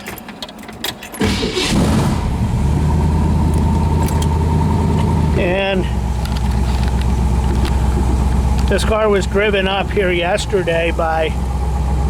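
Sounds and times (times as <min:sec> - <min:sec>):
keys clicking in ignition: 0:00.0 - 0:01.7, 0:03.4 - 0:05.2, 0:06.1 - 0:08.8
car engine starting and idling: 0:00.0 - 0:12.0.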